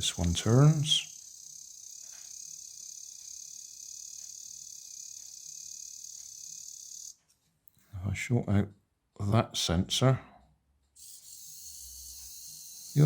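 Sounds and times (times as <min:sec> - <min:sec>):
toy car motor whirring: 0:00.0 - 0:07.3, 0:11.0 - 0:13.0
faint gearbox ticks: 0:00.1 - 0:07.2.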